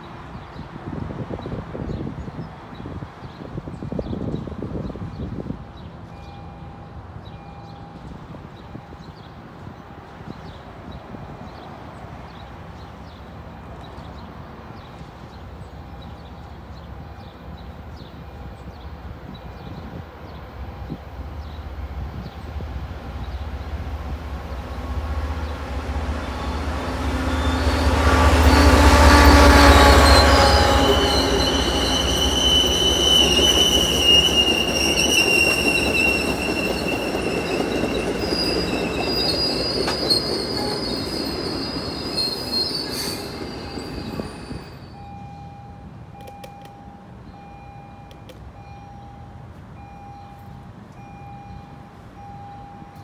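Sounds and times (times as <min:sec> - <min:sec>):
diesel locomotive engine rumble: 0:00.0 - 0:53.0
train wheels squealing on rails: 0:25.4 - 0:49.2.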